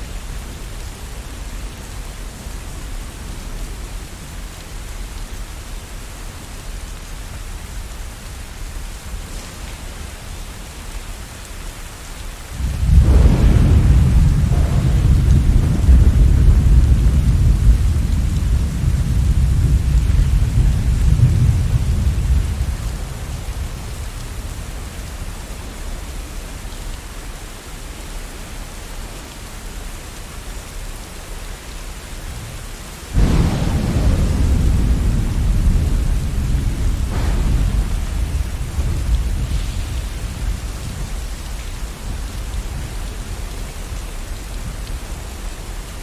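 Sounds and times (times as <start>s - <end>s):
steady rain: 0.0s - 46.0s
rolling thunder: 12.5s - 25.2s, 33.1s - 43.8s
thunderclap: 12.6s - 24.8s, 33.2s - 43.1s.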